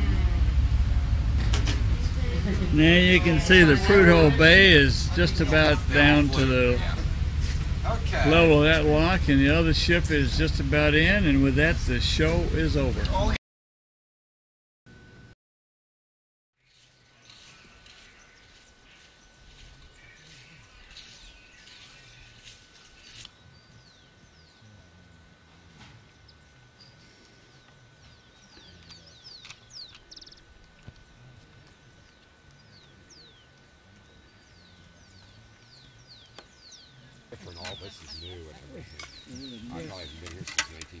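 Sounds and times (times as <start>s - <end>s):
birds chirping: 0.0s - 13.4s, 16.6s - 41.0s
low rumble: 0.0s - 13.4s.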